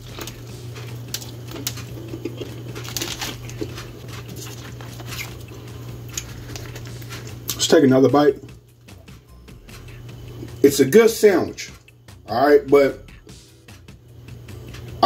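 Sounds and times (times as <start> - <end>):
person chewing with mouth clicks: 0.0 - 7.6
steady low hum: 0.0 - 15.0
paper wrapper rustling: 1.1 - 5.5, 6.1 - 7.4.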